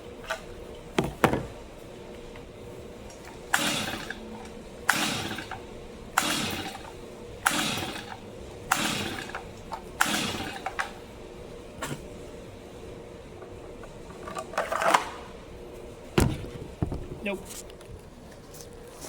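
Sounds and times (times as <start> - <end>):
chainsaw recoil starter pulls: 3.5 - 4.2, 4.9 - 5.6, 6.2 - 11.0.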